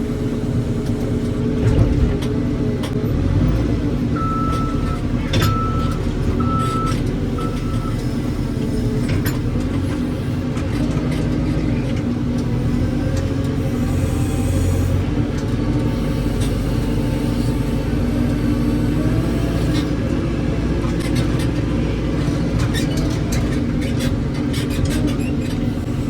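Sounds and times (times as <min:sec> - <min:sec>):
diesel engine drone: 0:00.0 - 0:26.0
backup alarm beeping: 0:04.2 - 0:08.0.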